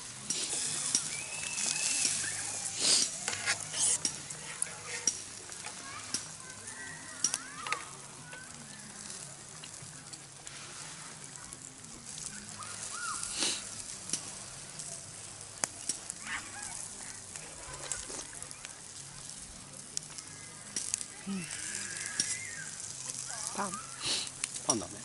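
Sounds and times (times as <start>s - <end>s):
food sizzling in a pan: 0.0s - 25.0s
utensils scraping a pan: 0.2s - 6.2s.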